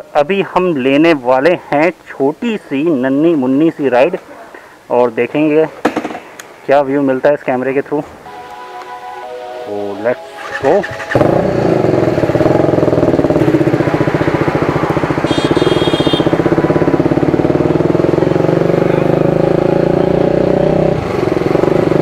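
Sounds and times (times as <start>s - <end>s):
short high-pitched tone: 8.2s - 11.6s
motorcycle engine running: 10.4s - 22.0s.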